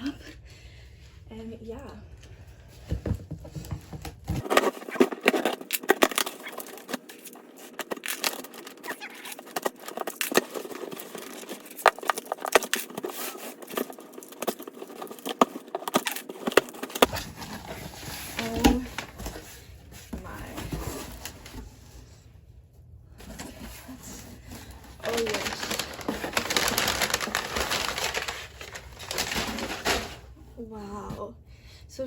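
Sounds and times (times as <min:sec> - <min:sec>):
cardboard box being opened: 0:03.0 - 0:21.8, 0:23.2 - 0:30.3
packaging crinkling: 0:04.4 - 0:19.4, 0:24.2 - 0:30.3.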